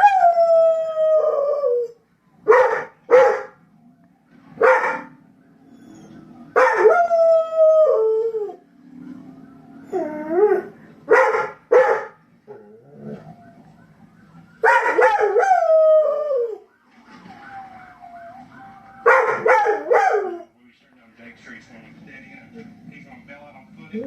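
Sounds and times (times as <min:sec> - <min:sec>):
dog barks and yips: 0:02.5 - 0:03.5, 0:11.1 - 0:12.2, 0:19.0 - 0:20.5
dog howling: 0:05.7 - 0:08.6, 0:14.6 - 0:16.6, 0:17.3 - 0:20.5.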